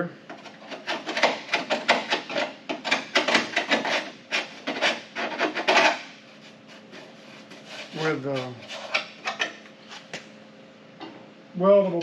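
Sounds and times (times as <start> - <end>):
rubbing and scrubbing by hand: 0.5 - 9.0.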